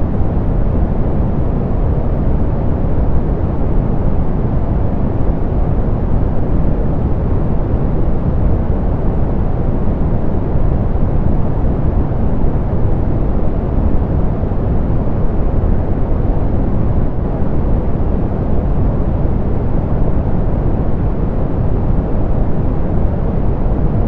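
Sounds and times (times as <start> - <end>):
muffled pink noise hiss: 0.0 - 24.0.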